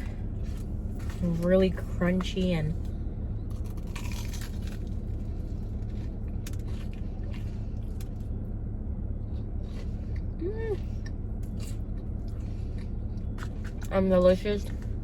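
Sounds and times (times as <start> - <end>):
low hum: 0.0 - 15.0
crunchy bites and chewing: 2.8 - 8.6, 9.2 - 13.9.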